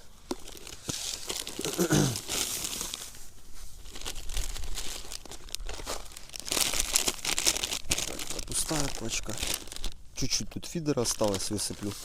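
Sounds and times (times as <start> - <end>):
plastic packet crinkling: 0.2 - 3.2, 3.8 - 12.0.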